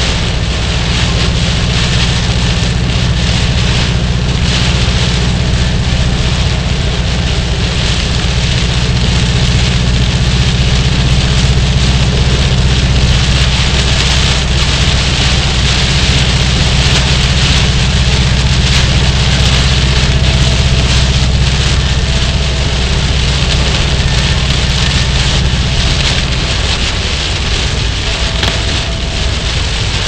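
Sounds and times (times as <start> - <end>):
car engine and road hum: 0.0 - 30.0
heavy rain hissing on car: 0.0 - 30.0
tyres on wet road: 0.0 - 30.0.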